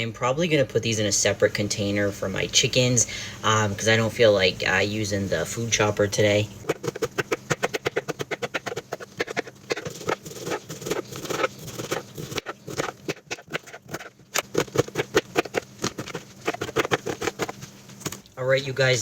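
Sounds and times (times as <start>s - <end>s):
knife chopping on cutting board: 6.6s - 18.2s.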